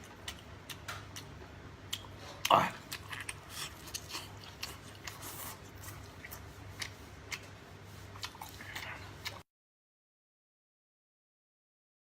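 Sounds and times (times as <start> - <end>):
low electrical hum: 0.0 - 9.5
person chewing food: 0.0 - 9.5.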